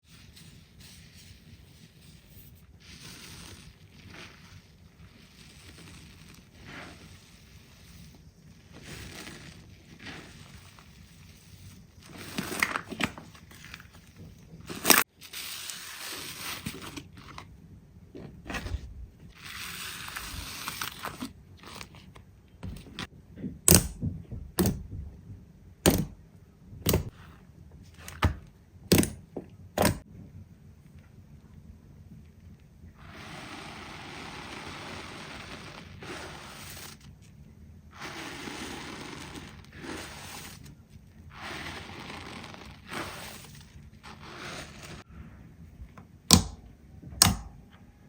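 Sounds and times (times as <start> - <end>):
slime squelching by hand: 0.1 - 17.4, 37.9 - 45.1
air pockets popping: 25.8 - 26.2, 26.8 - 27.2.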